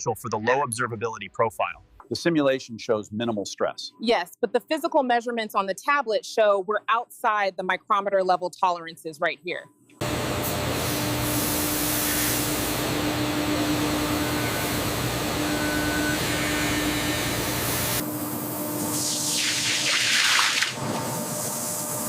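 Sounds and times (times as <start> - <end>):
machinery hiss: 10.4 - 13.1, 18.8 - 20.6.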